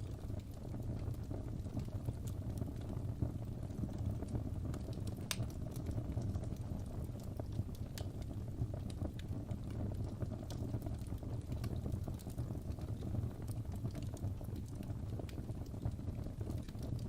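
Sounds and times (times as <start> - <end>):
fire crackling: 0.0 - 17.0
fire pops and snaps: 0.0 - 17.0.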